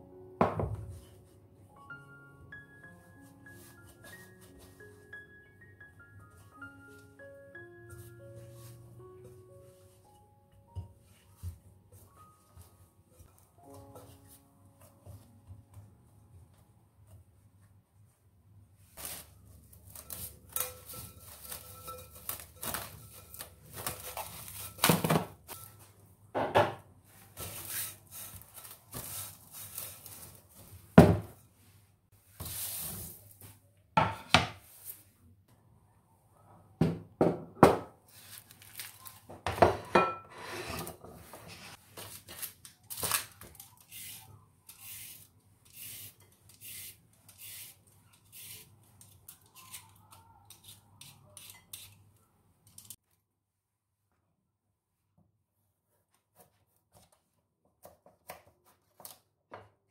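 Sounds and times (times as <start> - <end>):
objects knocking on hard surface: 26.4 - 26.8.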